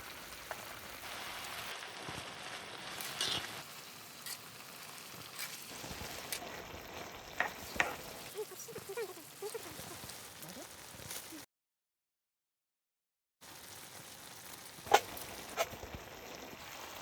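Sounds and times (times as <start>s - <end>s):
food sizzling in a pan: 0.0s - 11.5s, 13.4s - 17.0s.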